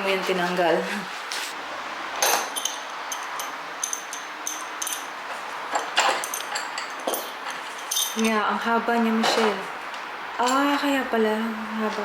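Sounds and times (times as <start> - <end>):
hand tools clinking on metal: 2.2 - 8.5.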